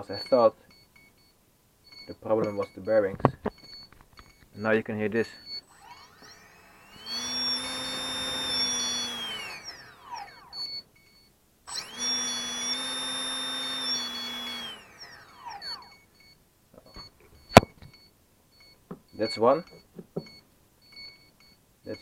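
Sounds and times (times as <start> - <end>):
small electric motor whining: 5.2 - 10.9, 11.7 - 16.3.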